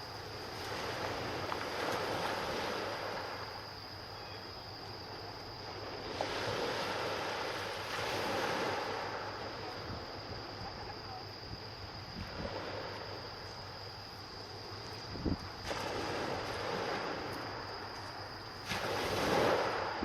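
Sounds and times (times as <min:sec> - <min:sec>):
sea surf on shore: 0:00.0 - 0:20.0
wind: 0:00.0 - 0:20.0.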